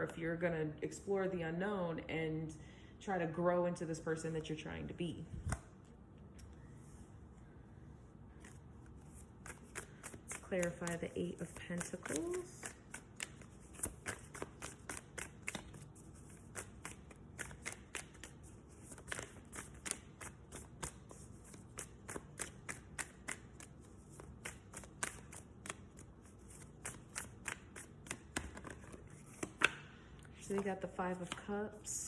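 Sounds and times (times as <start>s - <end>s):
cards being shuffled: 8.3s - 31.9s.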